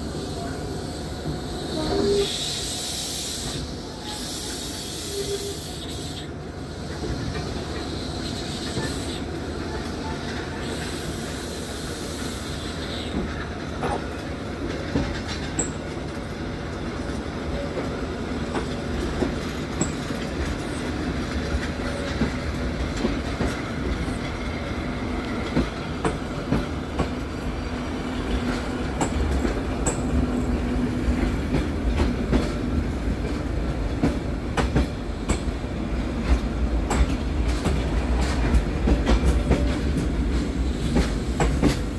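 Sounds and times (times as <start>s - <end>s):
train rumble: 0.0s - 41.9s
hiss: 0.1s - 13.3s
train wheels clicking on rails: 1.0s - 41.9s.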